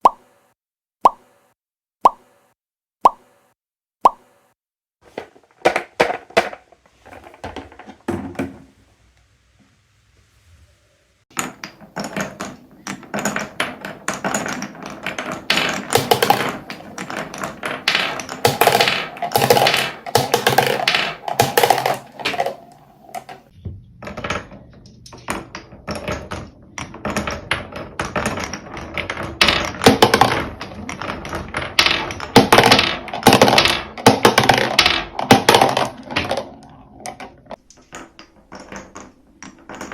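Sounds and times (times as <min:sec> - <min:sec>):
marbles clattering down wooden run: 0:11.3 - 0:39.9.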